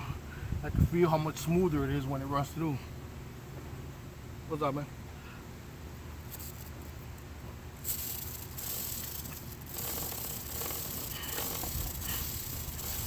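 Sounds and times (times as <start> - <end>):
aerosol spray hissing: 7.9 - 13.0.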